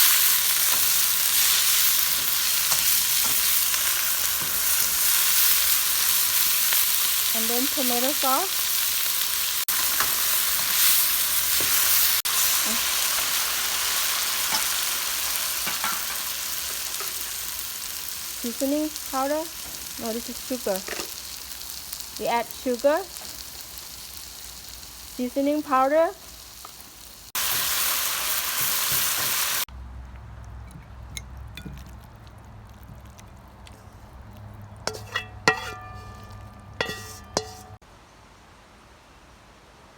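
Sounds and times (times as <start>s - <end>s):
vegetables sizzling in a pan: 0.0s - 29.7s, 34.5s - 37.8s
utensil scraping a pan: 34.8s - 37.8s.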